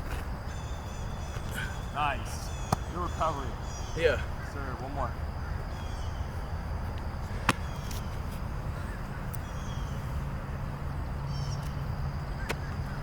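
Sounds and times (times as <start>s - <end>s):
low outdoor rumble: 0.0s - 13.0s
faint bird chirps: 0.5s - 4.8s, 5.4s - 6.6s, 7.3s - 10.2s
football smacking hands: 2.7s - 2.9s, 7.4s - 8.0s.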